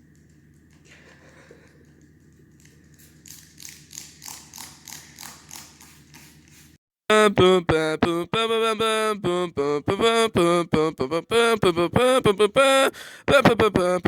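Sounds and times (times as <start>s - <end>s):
spray bottle squirting: 2.6s - 6.8s.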